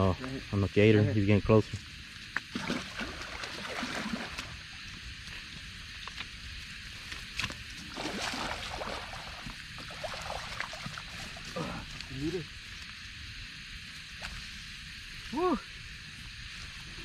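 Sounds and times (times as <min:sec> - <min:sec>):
night insects chirring: 0:00.0 - 0:17.0
water sloshing and splashing: 0:02.4 - 0:04.8, 0:07.1 - 0:12.2.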